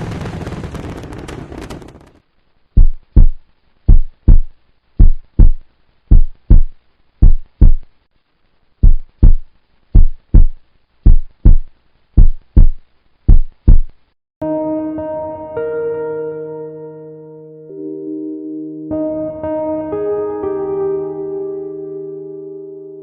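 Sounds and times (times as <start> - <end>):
heartbeat thumps: 2.8 - 7.9, 8.8 - 14.0.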